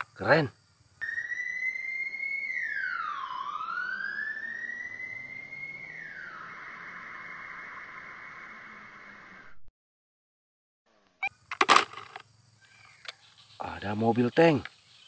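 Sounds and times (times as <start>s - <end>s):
electronic police siren: 1.0s - 9.6s.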